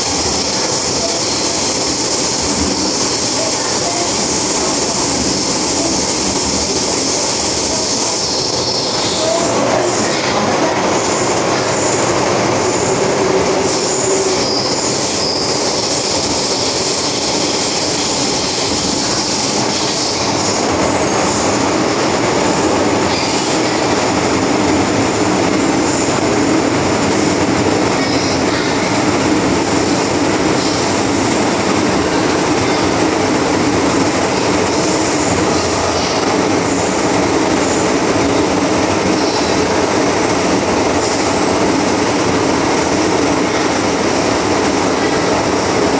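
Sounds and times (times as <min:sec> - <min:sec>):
train wheels rumbling on rail: 0:00.0 - 0:45.9
high-pitched squealing: 0:00.4 - 0:21.7.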